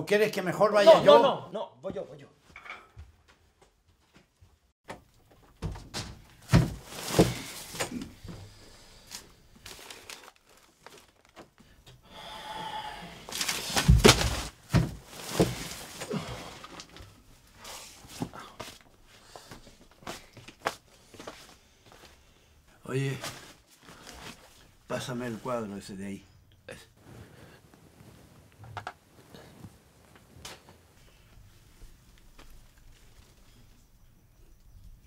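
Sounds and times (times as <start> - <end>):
thuds and knocks of boxes: 5.6 - 7.9, 13.7 - 15.8
paper and plastic rustling: 6.5 - 8.0, 9.0 - 11.7, 13.3 - 17.2.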